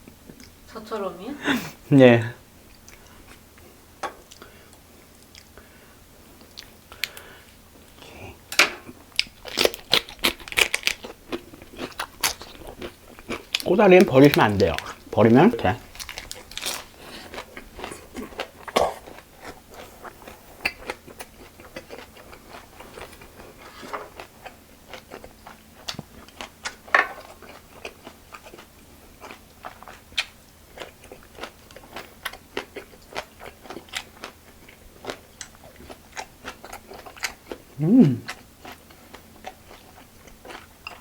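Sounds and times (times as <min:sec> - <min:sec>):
person chewing and crunching food: 0:02.6 - 0:41.0.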